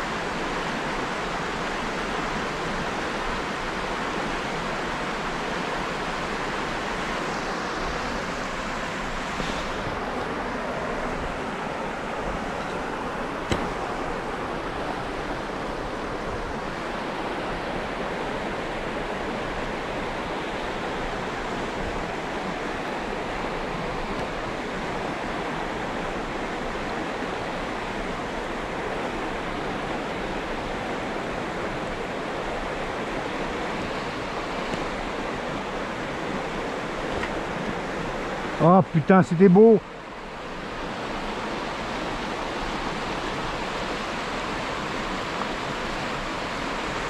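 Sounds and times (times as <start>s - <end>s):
river water rushing over riffles: 0.0s - 47.0s.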